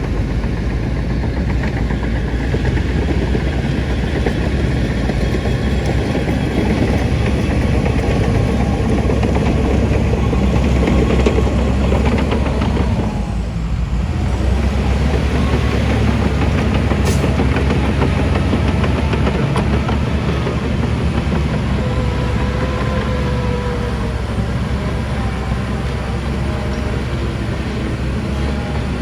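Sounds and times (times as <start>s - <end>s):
heavy diesel engine running: 0.0s - 29.0s.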